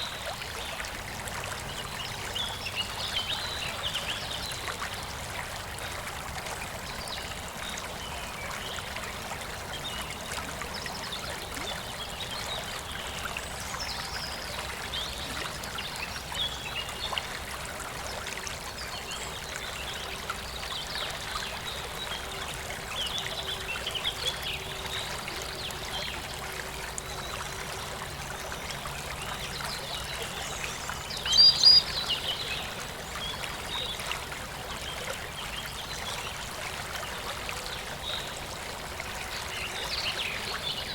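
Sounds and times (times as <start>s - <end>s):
water trickling: 0.0s - 40.9s
birds chirping: 31.1s - 32.4s.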